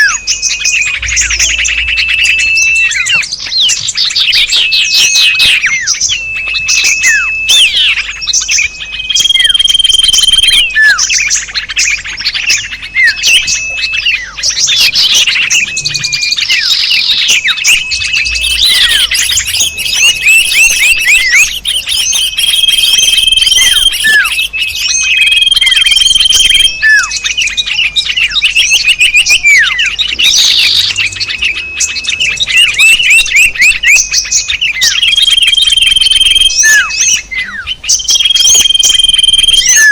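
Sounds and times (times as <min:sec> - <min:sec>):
level whistle: 0:00.0 - 0:03.2, 0:04.2 - 0:11.3, 0:13.0 - 0:27.5, 0:34.8 - 0:39.9
songbirds chirping chorus: 0:00.0 - 0:39.9.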